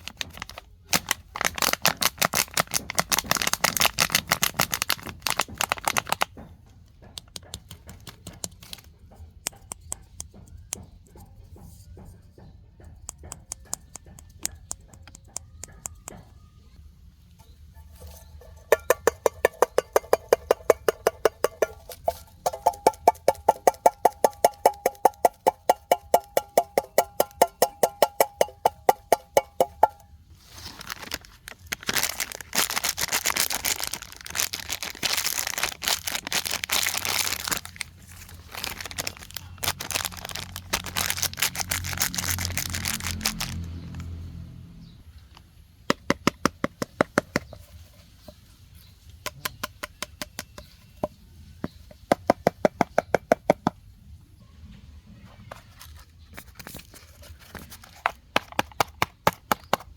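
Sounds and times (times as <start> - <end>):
rustling crinkling noise: 0.0 - 6.4, 29.8 - 44.1.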